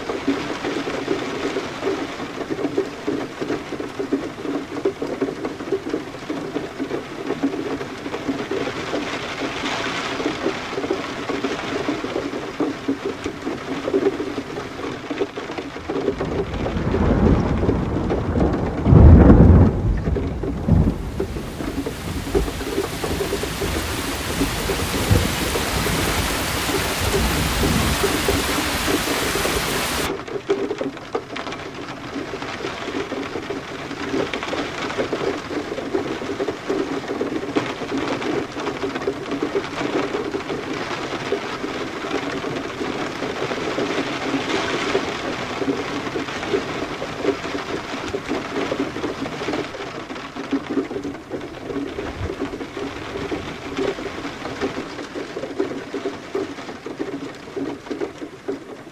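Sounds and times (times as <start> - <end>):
heavy rain falling: 0.0 - 58.9
low rumble of thunder: 16.1 - 30.1.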